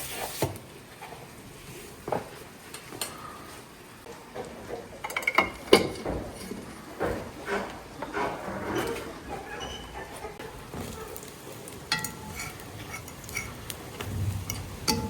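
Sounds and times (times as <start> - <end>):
utensils knocking against pots: 4.3 - 9.9, 10.7 - 15.0.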